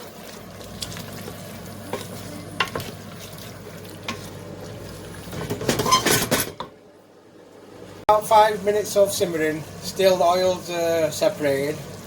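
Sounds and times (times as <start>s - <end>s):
food sizzling in a pan: 0.0s - 5.9s, 8.2s - 12.0s
stirring in a pan: 0.0s - 6.1s.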